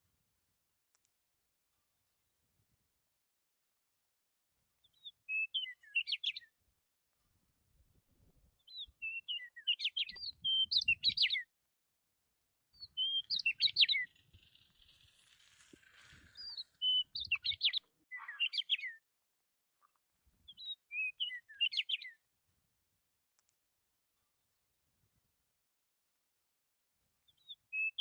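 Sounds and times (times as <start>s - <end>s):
budgerigars chirping and warbling: 13.0s - 15.3s, 16.4s - 18.9s.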